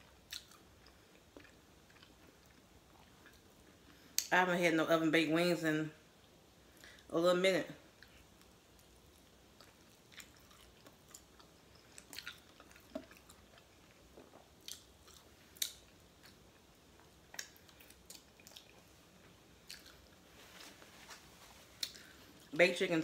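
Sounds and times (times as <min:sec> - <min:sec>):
chewing crispy chicken wings: 0:00.0 - 0:03.8, 0:08.0 - 0:20.2.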